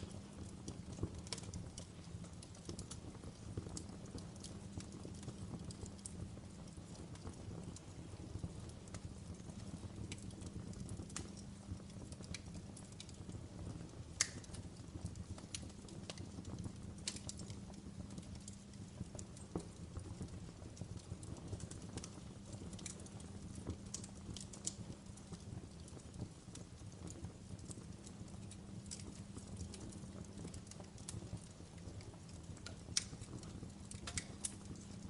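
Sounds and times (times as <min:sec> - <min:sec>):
fire crackling: 0:00.0 - 0:35.0
low rumble of flames: 0:00.0 - 0:35.0.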